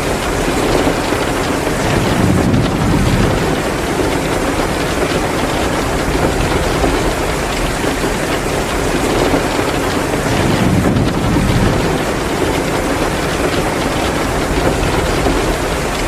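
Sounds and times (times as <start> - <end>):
heavy rain downpour: 0.0 - 16.0
low rumbling swell: 1.8 - 4.7.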